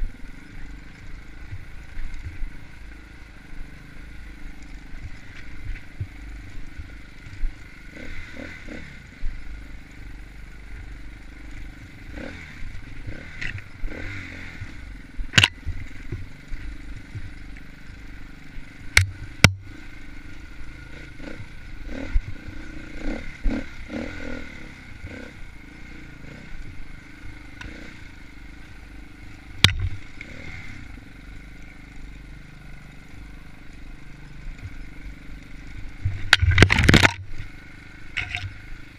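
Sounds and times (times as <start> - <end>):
dirt bike engine running: 0.0 - 38.9
bike clattering on rough ground: 11.6 - 19.8, 29.4 - 30.5, 34.5 - 38.8.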